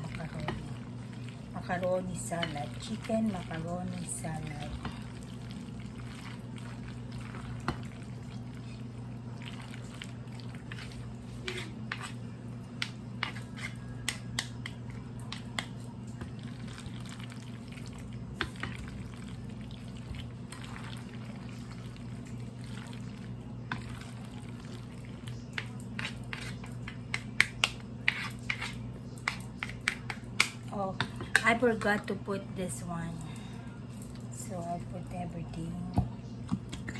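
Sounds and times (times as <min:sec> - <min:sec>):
utensil stirring macaroni salad: 0:00.0 - 0:32.0
steady low hum: 0:00.0 - 0:36.9.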